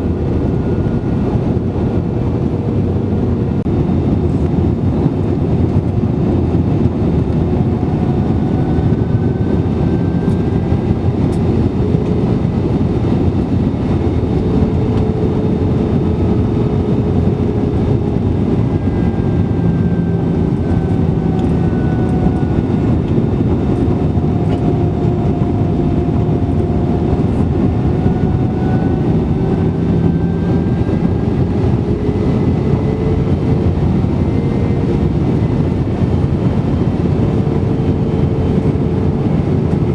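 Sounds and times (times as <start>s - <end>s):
aircraft cabin engine and airflow rush: 0.0s - 39.9s.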